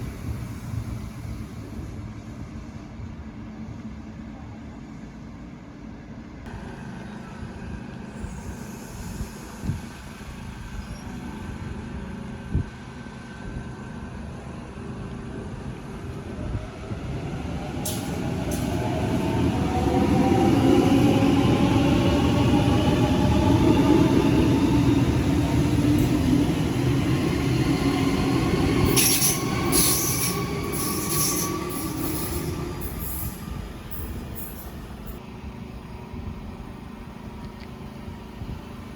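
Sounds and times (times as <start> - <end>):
high-pitched wheel squeals: 28.8 - 33.4.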